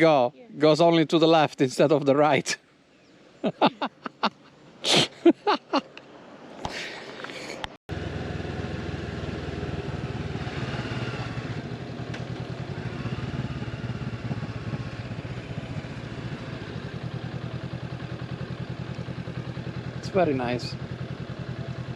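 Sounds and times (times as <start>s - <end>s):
motorcycle engine running: 7.9s - 21.9s.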